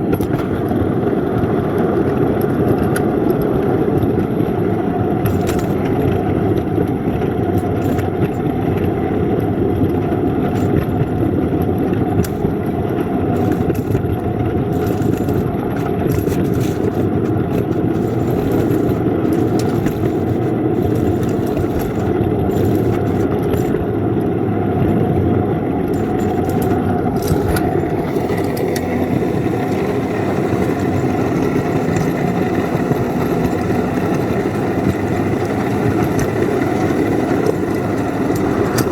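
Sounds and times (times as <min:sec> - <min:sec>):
rail vehicle engine running: 0:12.1 - 0:23.8, 0:24.6 - 0:38.9.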